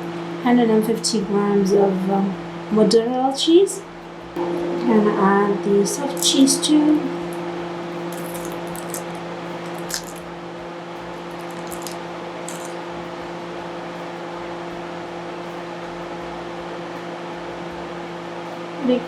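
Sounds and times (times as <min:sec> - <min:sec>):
appliance hum: 0:00.0 - 0:19.0
soft cheese squishing and scraping: 0:09.7 - 0:10.2, 0:11.2 - 0:12.8.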